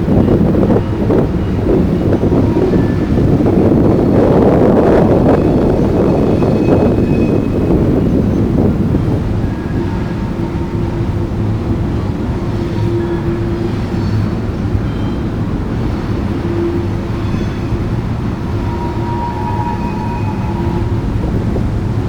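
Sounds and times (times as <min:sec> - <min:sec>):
train wheels rumbling on rail: 0:00.0 - 0:22.0
faint squealing: 0:18.5 - 0:21.2.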